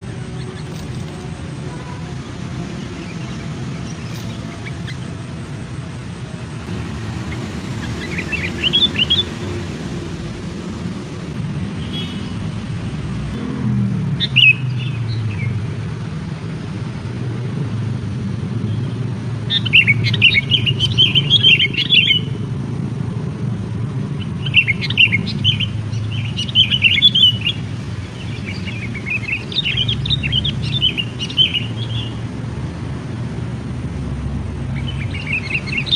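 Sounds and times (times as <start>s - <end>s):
small birds chirping: 0.0s - 12.4s, 18.7s - 22.4s, 24.2s - 32.6s, 34.7s - 35.9s
steady low rumble: 0.0s - 13.4s.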